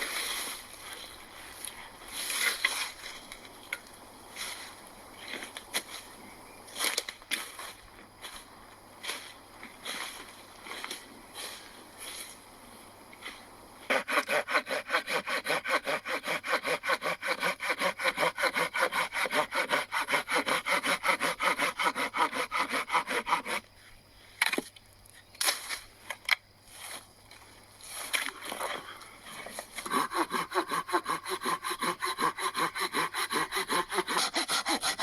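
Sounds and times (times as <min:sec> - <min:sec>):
hand saw cutting wood: 0:13.9 - 0:23.7, 0:29.6 - 0:35.0.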